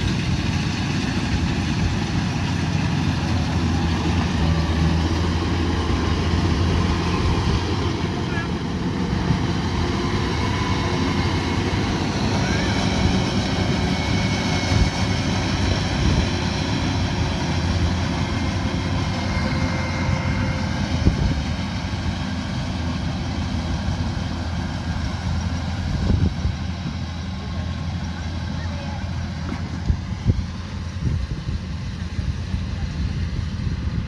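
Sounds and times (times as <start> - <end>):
combine harvester running: 0.0 - 34.0.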